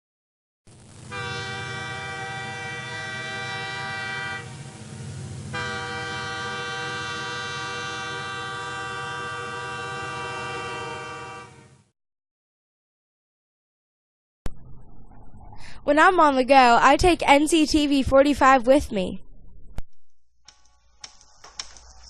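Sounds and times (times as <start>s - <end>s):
horn sounding a chord: 0.9s - 11.9s
low rumble: 14.5s - 17.8s, 18.9s - 20.2s.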